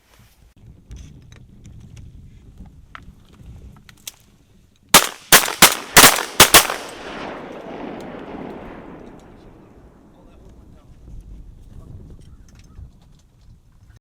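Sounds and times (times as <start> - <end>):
shotgun shots: 5.0 - 9.6
gunshot echo: 5.0 - 9.9.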